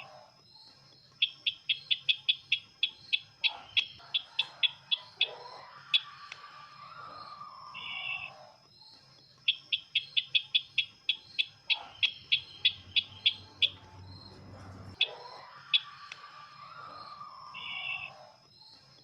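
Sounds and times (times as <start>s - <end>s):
bird trill: 0.0s - 19.0s
bird call chip notes: 9.5s - 15.2s.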